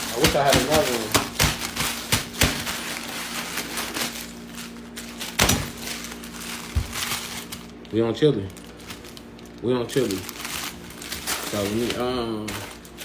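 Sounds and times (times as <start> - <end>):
wrappers rustling: 0.0 - 13.0.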